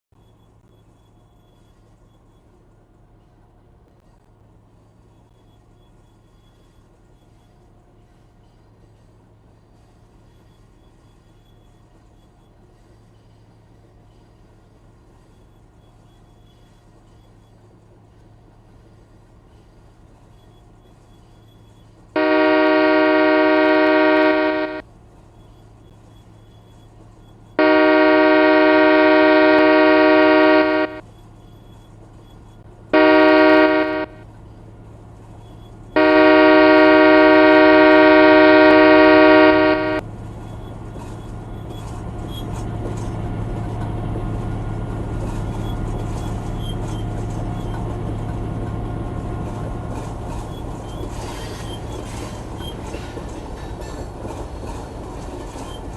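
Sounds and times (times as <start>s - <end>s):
train rumbling by: 0.2s - 55.9s
locomotive air horn: 22.2s - 24.8s, 27.6s - 31.0s, 32.9s - 34.3s, 35.9s - 40.0s.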